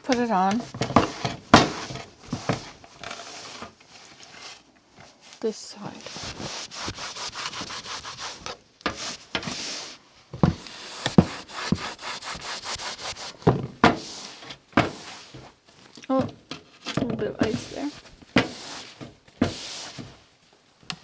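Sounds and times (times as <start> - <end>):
scraping on wooden door: 0.1 - 3.6, 10.4 - 15.5, 16.1 - 20.3.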